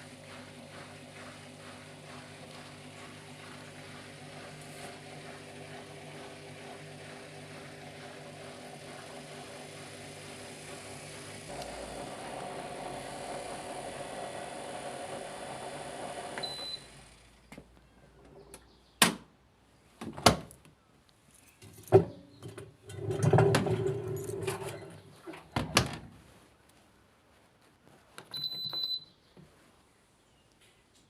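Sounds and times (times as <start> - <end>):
machine hum: 2.1 - 17.2.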